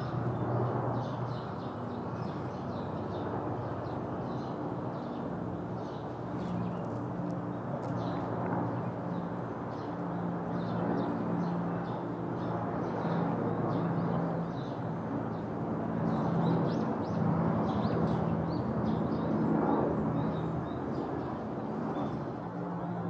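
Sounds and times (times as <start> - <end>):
small birds chirping: 0.0 - 15.5.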